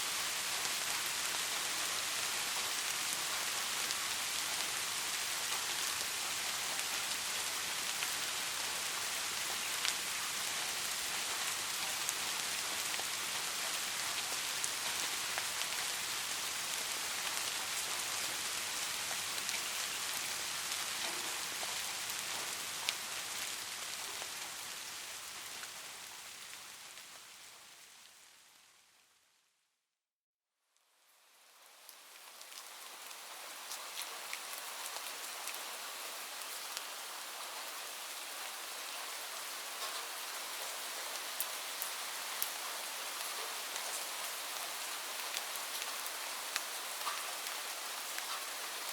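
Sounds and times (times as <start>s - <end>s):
steady rain falling: 0.0s - 29.6s, 30.8s - 48.9s
raindrop ticks: 21.0s - 23.0s, 39.8s - 40.8s, 45.2s - 48.5s.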